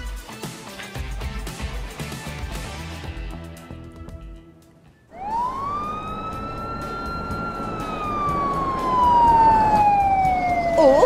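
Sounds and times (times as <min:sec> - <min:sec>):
police siren wailing: 0:05.1 - 0:11.0.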